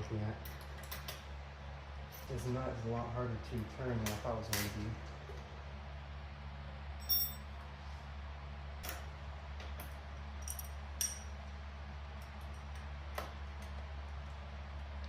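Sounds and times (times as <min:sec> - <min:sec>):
steady low hum: 0:00.0 - 0:15.0
metal wrench clinking on bolt: 0:10.4 - 0:11.3.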